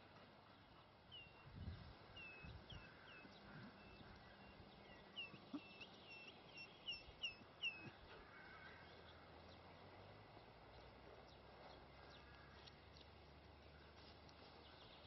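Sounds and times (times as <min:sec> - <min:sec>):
faint bird calls: 0:02.1 - 0:09.2.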